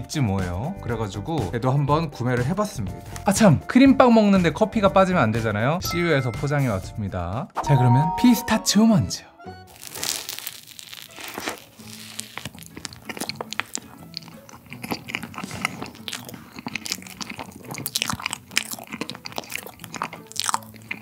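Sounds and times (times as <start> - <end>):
biting and chewing soft bun: 9.7 - 21.0
nuts crunching: 9.7 - 21.0.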